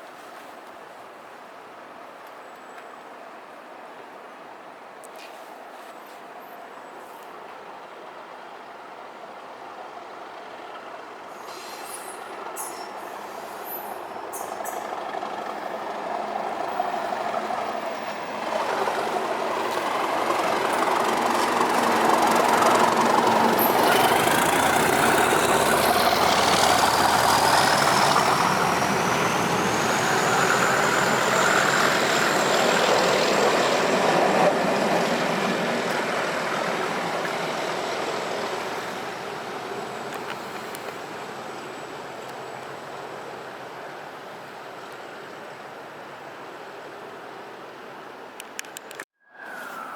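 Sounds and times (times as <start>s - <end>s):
train passing: 7.3s - 48.4s
thin high whine: 49.2s - 49.9s.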